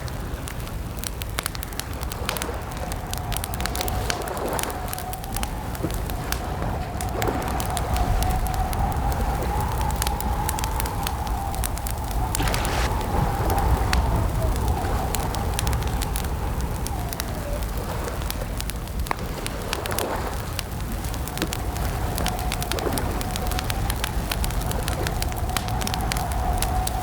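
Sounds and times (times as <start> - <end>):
campfire crackling: 0.0 - 27.0
low rumble: 1.8 - 19.7.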